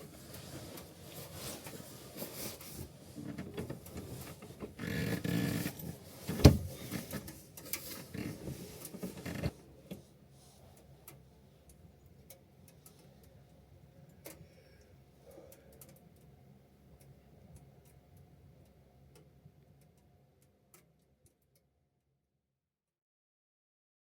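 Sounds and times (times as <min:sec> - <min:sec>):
rustling and clattering handling: 0:00.0 - 0:10.0.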